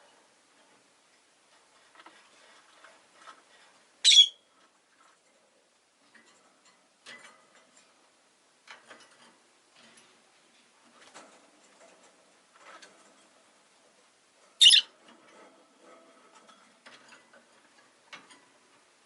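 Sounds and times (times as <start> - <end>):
faint ticks and rustles: 0.0 - 19.0
lovebird shrill chirp: 4.0 - 4.4, 14.6 - 14.9.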